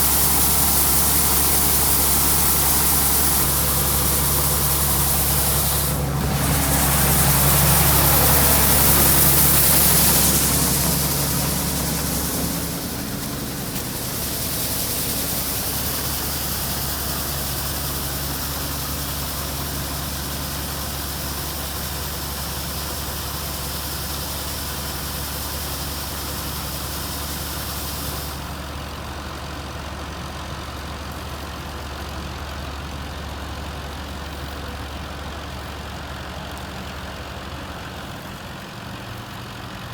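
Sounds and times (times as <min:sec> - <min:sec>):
loud hiss: 0:00.0 - 0:28.8
heavy machinery engine running: 0:00.0 - 0:39.9.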